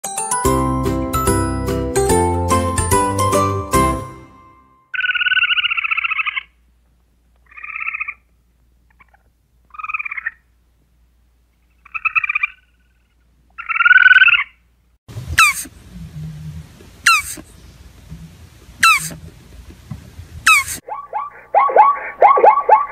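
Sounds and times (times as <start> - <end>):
squirrel chattering: 15.4 - 15.7, 17.0 - 17.5, 18.8 - 19.2, 20.5 - 22.9.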